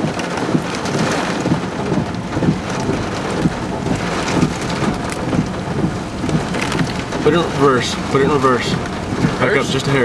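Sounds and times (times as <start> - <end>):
heavy rain pelting a vehicle: 0.0 - 10.0
wind gusting: 0.5 - 10.0.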